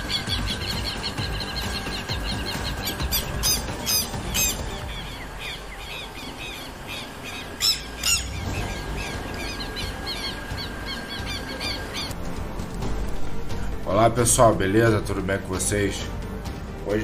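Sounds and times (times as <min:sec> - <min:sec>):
birds chirping: 0:00.0 - 0:12.2
harsh bird squawks: 0:00.0 - 0:12.2.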